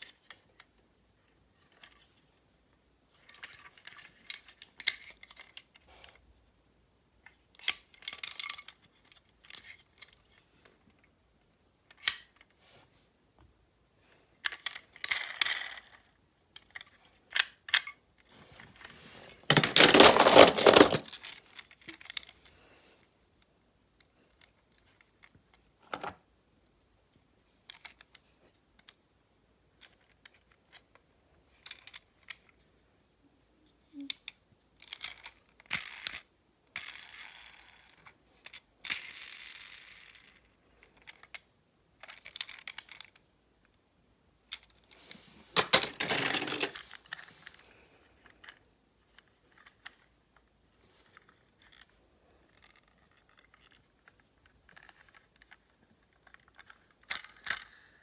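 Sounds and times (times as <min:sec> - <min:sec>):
scraping rustling noise: 0:18.3 - 0:21.2, 0:44.9 - 0:47.6
small hard objects clicking and rattling: 0:19.5 - 0:22.3, 0:45.6 - 0:46.9.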